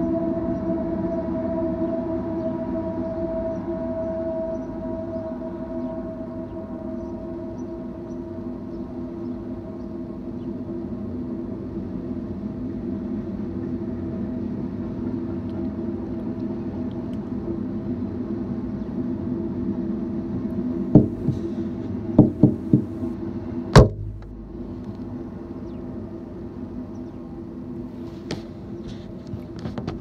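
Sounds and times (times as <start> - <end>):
freight train rumbling past: 17.5 - 28.0
sharp knocks: 20.9 - 21.5, 22.2 - 23.0, 23.8 - 24.5.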